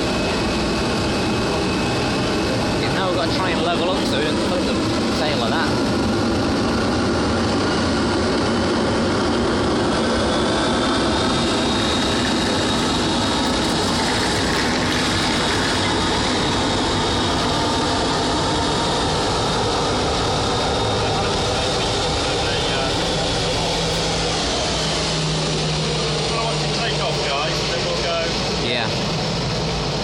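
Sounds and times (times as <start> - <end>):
jet engines whining: 0.0 - 30.0.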